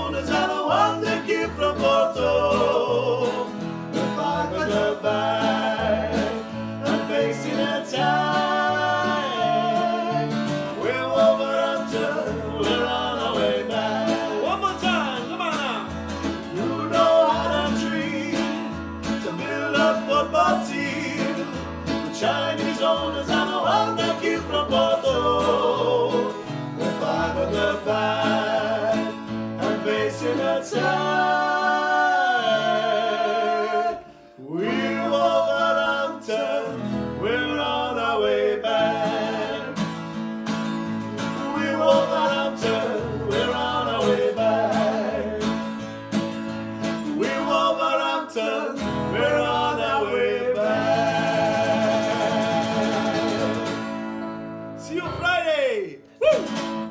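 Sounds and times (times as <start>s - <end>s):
strummed acoustic guitar: 0.0s - 55.5s, 56.1s - 56.9s.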